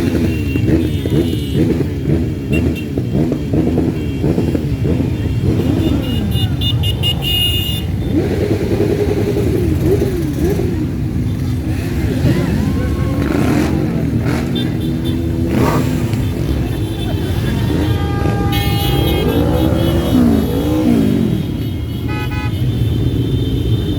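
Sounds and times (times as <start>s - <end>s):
motorcycles riding past: 0.0s - 23.9s.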